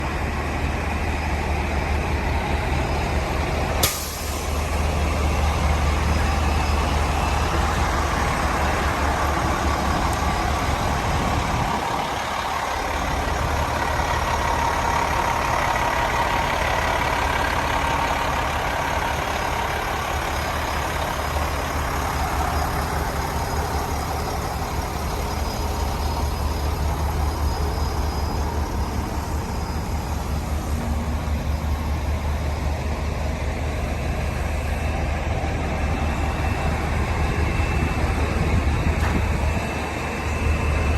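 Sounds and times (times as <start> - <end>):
diesel truck engine running: 0.0 - 40.9
air release click-hiss: 3.8 - 4.5.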